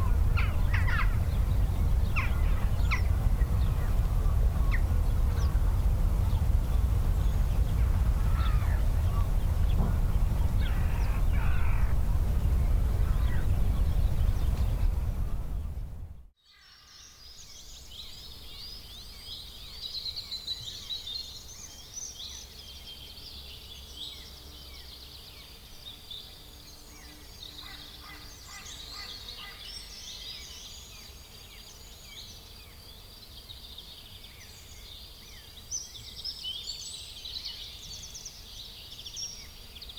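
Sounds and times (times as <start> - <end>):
steady low rumble: 0.0 - 16.3
birds chirping and twittering: 0.0 - 39.9.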